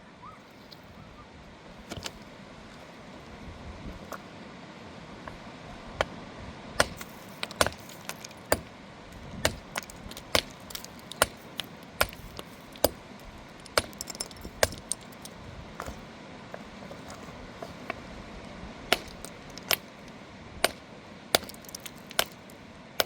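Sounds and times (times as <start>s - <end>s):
hard objects clinking: 6.8s - 8.7s, 9.4s - 18.0s, 18.9s - 20.8s, 21.4s - 22.6s.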